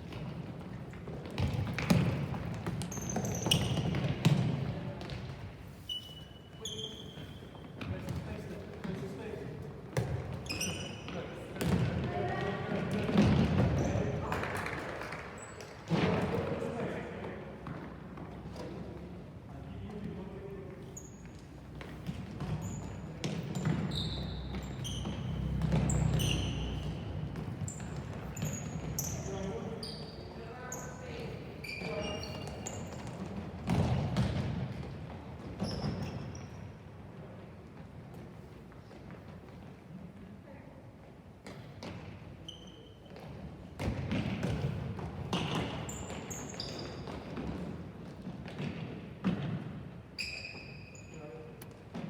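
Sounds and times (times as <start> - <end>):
sneakers squeaking on gym floor: 0.0 - 14.4, 19.8 - 39.9, 41.4 - 52.0
low hum of large hall: 0.0 - 52.0
ball bouncing on court: 0.1 - 5.4, 9.9 - 16.5, 21.0 - 30.0, 31.6 - 36.6, 41.4 - 50.3
short high squeaks: 5.9 - 7.6, 50.2 - 51.3.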